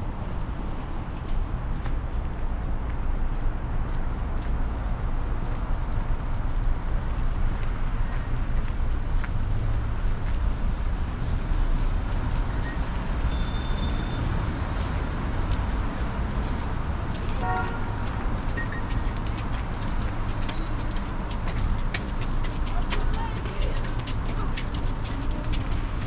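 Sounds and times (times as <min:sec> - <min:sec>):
road traffic: 0:00.0 - 0:26.0
car horn toot: 0:17.4 - 0:18.1.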